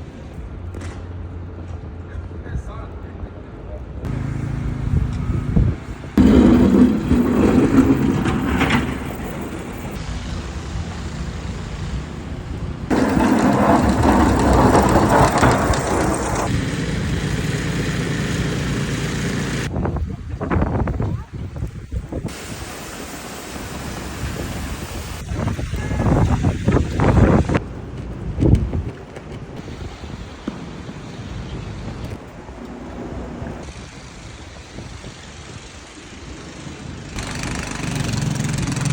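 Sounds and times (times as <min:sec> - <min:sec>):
low traffic rumble: 0:00.0 - 0:38.9
vehicle engine approaching: 0:04.1 - 0:19.7
rushing noisy wash: 0:22.2 - 0:27.7.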